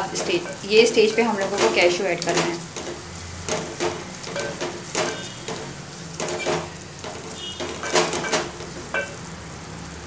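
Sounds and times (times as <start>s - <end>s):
wooden spatula scraping a pot: 0.0s - 9.1s
onions sizzling in oil: 0.0s - 10.0s.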